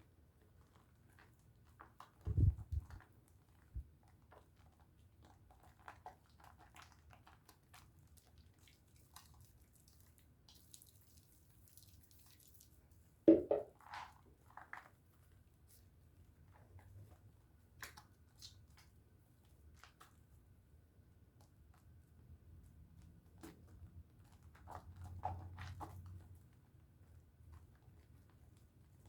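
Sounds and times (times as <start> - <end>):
soap lather crackling and squishing: 0.3 - 13.1, 13.8 - 21.9, 22.6 - 29.0.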